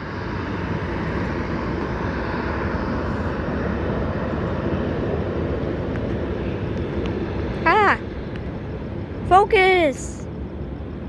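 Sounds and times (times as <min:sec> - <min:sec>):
jet engines of airliner: 0:00.0 - 0:07.5.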